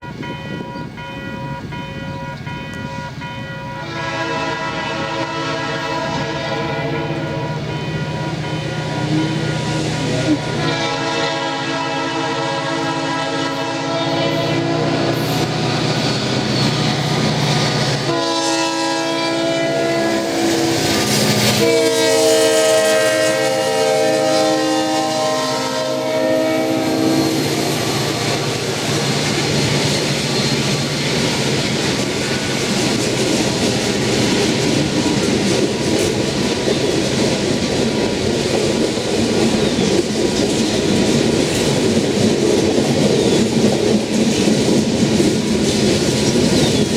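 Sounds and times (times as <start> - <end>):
train rumbling past: 0.0 - 46.9
locomotive horn blasts: 2.3 - 15.9, 16.8 - 28.6
wheels clicking over rail joints: 28.6 - 46.9.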